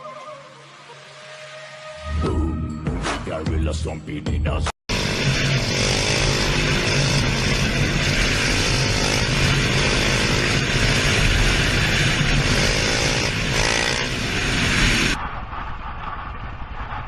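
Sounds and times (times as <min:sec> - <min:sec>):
motorcycle engine running: 0:04.9 - 0:15.2
continuous rushing noise: 0:04.9 - 0:17.0.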